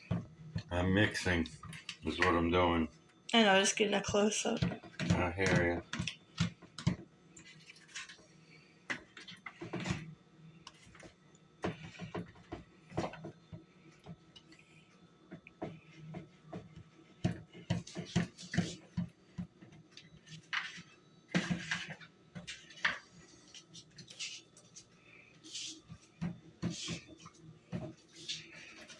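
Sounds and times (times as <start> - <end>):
utensil scraping and knocking bowl: 20.2 - 24.5.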